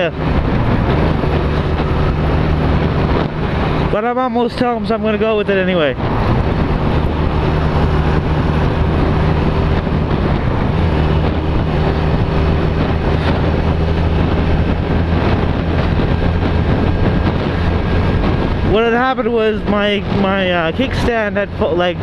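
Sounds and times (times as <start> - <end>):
motorcycle engine running: 0.0 - 22.0
wind and road rush: 0.0 - 22.0.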